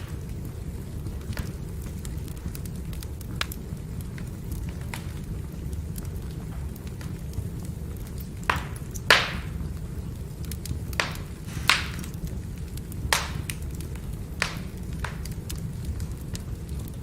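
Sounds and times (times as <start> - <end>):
firewood crackling pops: 0.0 - 17.0
wood fire burning: 0.0 - 17.0.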